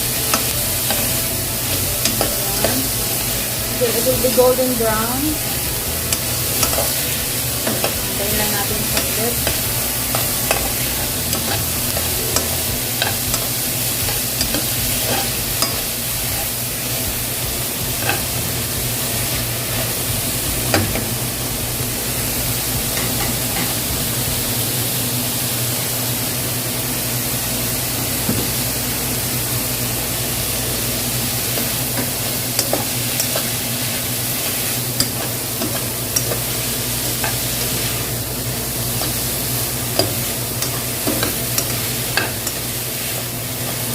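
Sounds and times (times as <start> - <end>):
onion and garlic sizzling in oil: 0.0 - 43.9.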